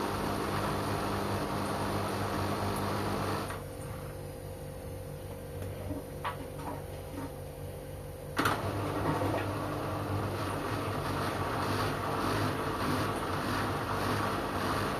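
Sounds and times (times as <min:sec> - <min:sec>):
quiet hum with faint ticks: 0:03.5 - 0:07.6.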